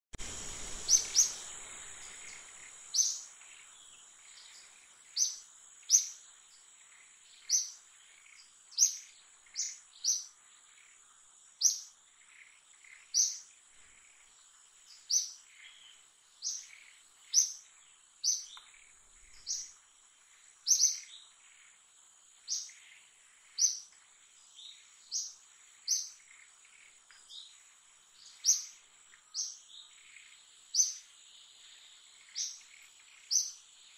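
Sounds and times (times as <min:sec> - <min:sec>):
high-pitched insect drone: 0:00.2 - 0:06.3
bird chirping: 0:00.2 - 0:33.9.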